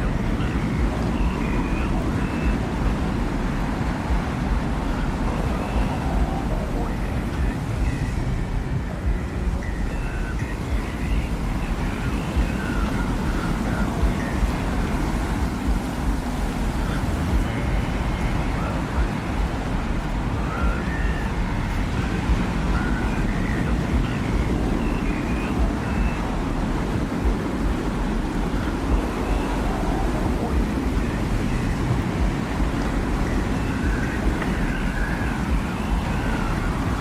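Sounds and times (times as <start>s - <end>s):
faint whistling tones: 0.0s - 37.0s
low rumbling wind: 0.0s - 37.0s.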